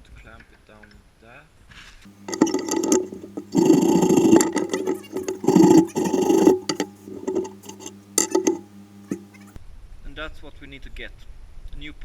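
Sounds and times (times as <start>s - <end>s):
handling rustling and scraping: 2.1s - 9.6s
steady low hum: 2.1s - 9.6s.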